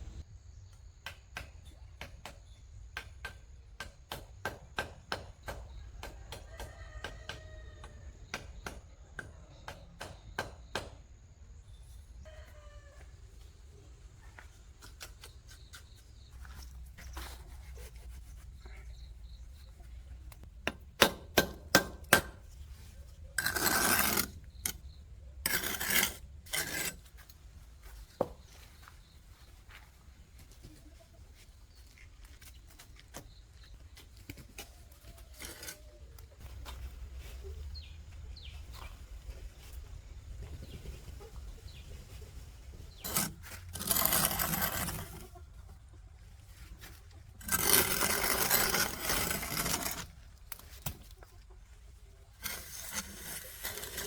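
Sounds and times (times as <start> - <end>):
rasping scraping: 15.1 - 27.4, 34.6 - 36.0, 42.3 - 45.4, 46.7 - 51.2, 52.3 - 54.0.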